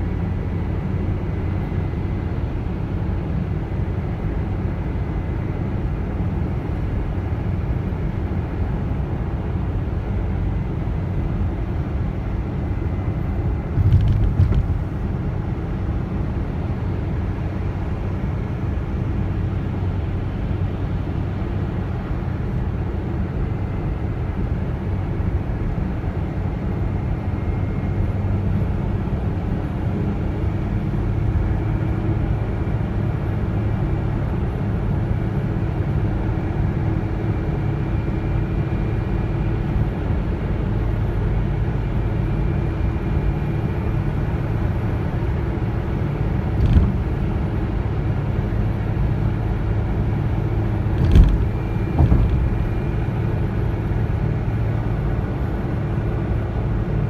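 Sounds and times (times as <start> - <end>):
car engine and road noise: 12.5 - 16.1, 46.4 - 47.7, 50.9 - 53.4
car bump: 13.7 - 15.1, 46.6 - 47.4, 51.0 - 53.2.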